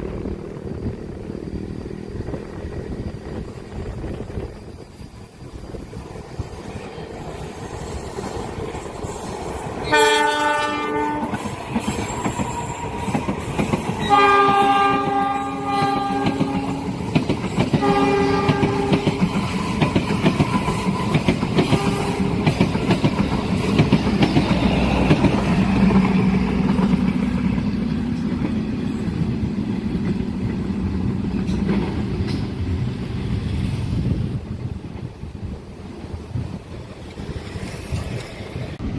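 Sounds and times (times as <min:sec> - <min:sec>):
train wheels clicking over rail joints: 0:00.0 - 0:38.9
train horn: 0:09.8 - 0:11.6, 0:14.0 - 0:17.1, 0:17.7 - 0:19.6, 0:21.6 - 0:22.7.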